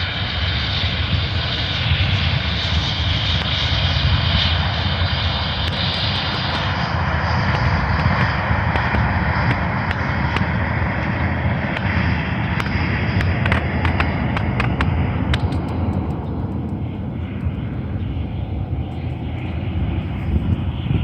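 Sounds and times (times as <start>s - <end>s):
jet engines roaring: 0.0s - 21.0s
sharp clicks: 12.6s - 17.6s.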